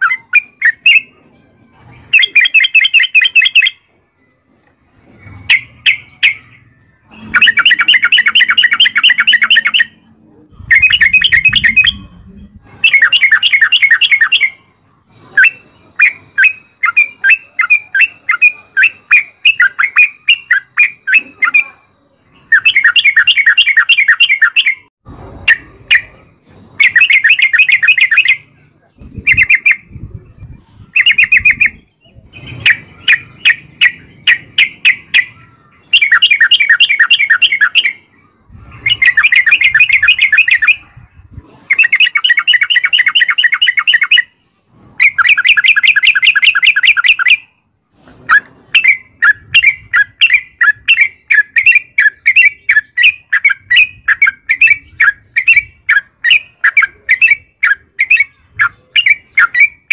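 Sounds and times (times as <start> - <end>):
bird chirps: 0.0 - 59.9
bird singing bubbly notes: 5.2 - 14.6.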